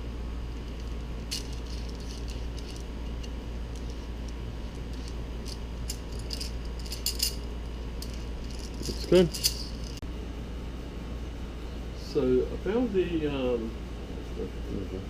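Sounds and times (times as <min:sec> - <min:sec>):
steady low hum: 0:00.0 - 0:15.0
metallic clinks of parts handled: 0:00.6 - 0:10.0.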